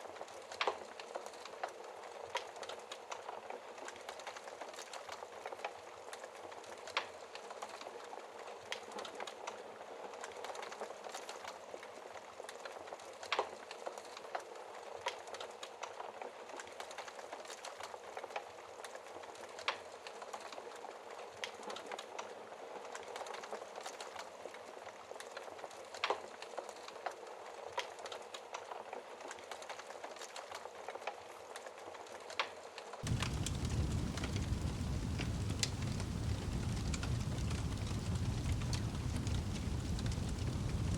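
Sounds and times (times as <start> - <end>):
fire crackles: 0.0 - 40.9
hiss of flames: 33.0 - 40.9
wood popping: 33.0 - 40.9.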